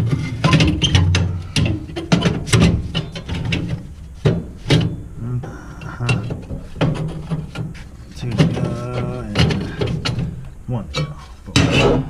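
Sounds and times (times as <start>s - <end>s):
metal tubes clanking and knocking: 0.0s - 12.0s.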